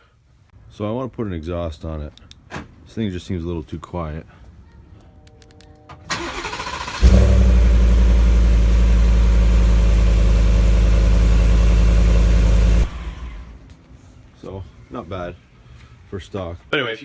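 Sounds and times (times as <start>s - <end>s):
truck engine starting and running: 6.1s - 13.6s.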